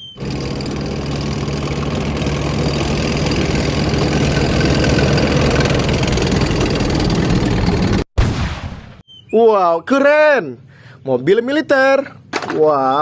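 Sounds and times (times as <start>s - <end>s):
tank engine running: 0.0s - 8.1s.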